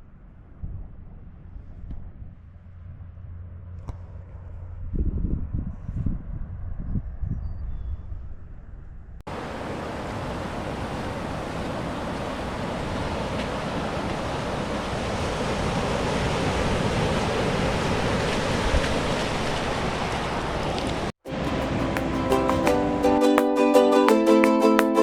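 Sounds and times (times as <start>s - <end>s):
wind: 0.0s - 23.3s
ocean surf rushing: 9.3s - 23.5s.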